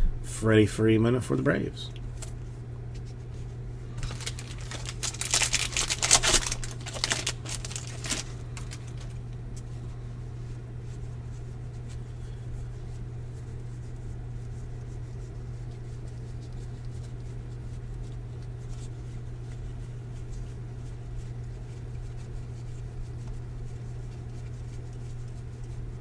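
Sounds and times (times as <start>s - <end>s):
steady low hum: 0.0s - 17.7s
trading cards shuffled and rustling: 4.0s - 9.7s.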